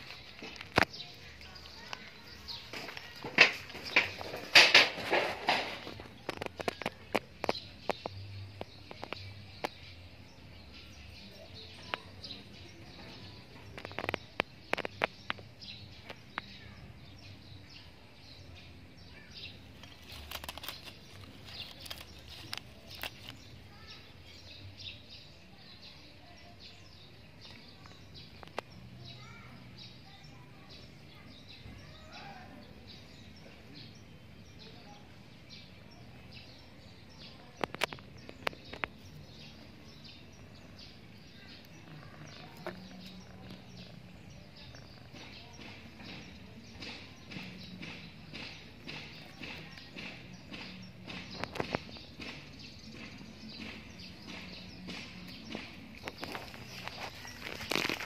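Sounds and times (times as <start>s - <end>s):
faint outdoor background noise: 0.0s - 58.0s
small birds chirping: 0.0s - 58.0s
sharp clicks: 19.8s - 23.6s.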